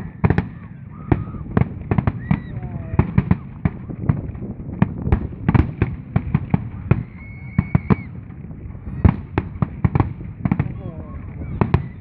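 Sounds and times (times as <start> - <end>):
firework bangs and crackles: 0.0 - 12.0
high whistle: 7.0 - 8.1.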